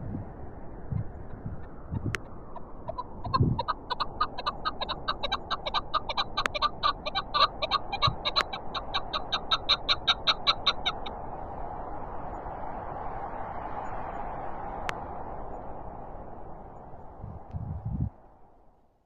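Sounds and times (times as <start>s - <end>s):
wind noise: 0.0s - 18.7s
partridge chuck calls: 0.9s - 11.2s.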